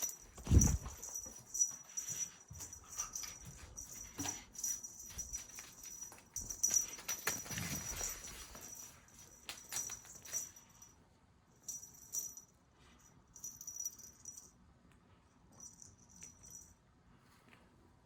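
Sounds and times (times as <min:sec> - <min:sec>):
cat toy rattling: 0:00.0 - 0:10.8.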